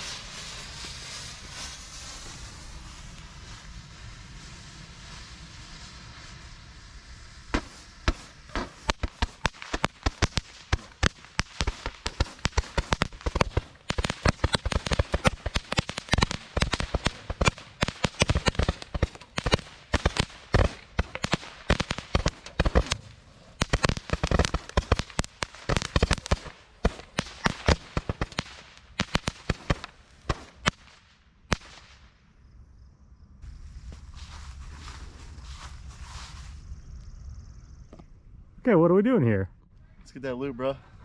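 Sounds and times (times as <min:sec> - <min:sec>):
firecrackers popping: 0:00.0 - 0:32.2.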